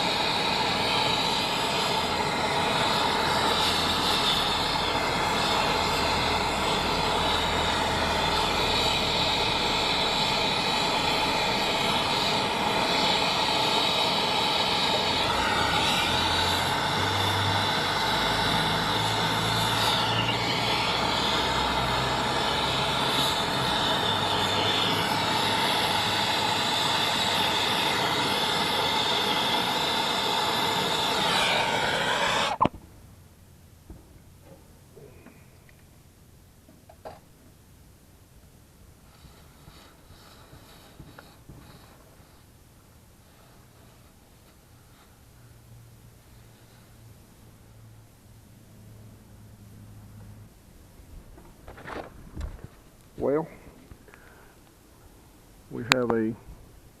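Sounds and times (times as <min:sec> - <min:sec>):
brazing torch hissing: 0:00.0 - 0:32.8, 0:39.0 - 0:42.6.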